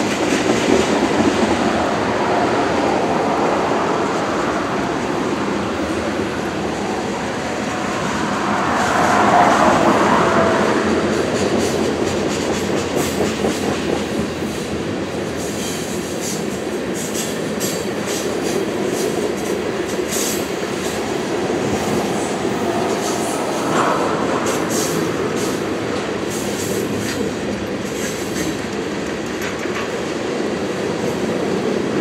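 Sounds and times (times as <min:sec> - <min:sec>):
train wheels rumbling: 0:00.0 - 0:32.0
wheels clicking over rail joints: 0:24.7 - 0:30.2.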